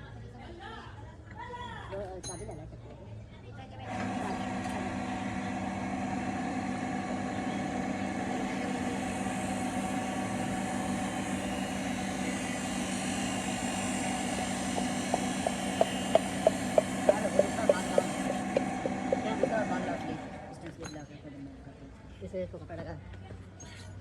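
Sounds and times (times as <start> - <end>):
machine humming: 4.0 - 20.5
sharp taps: 12.9 - 19.7.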